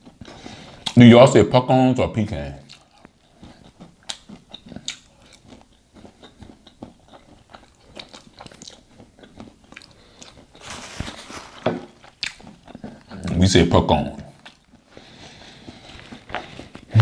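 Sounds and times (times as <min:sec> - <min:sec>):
crunchy chewing: 0:02.7 - 0:13.4.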